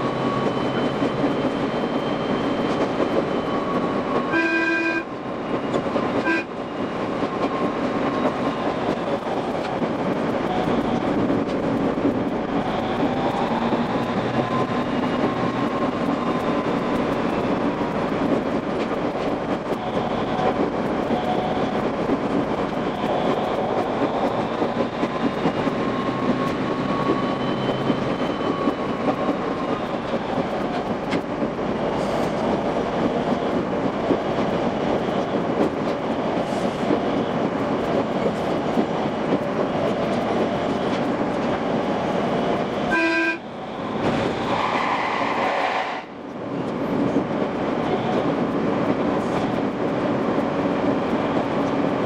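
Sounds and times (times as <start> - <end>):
train wheels rattling on rail: 0.0 - 52.0
horn-like tone: 4.3 - 5.1, 6.2 - 6.5, 42.9 - 43.5.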